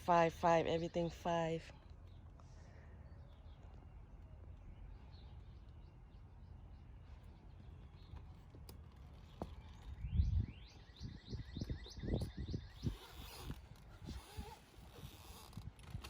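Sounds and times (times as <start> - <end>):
bird chirping: 0.2 - 14.6.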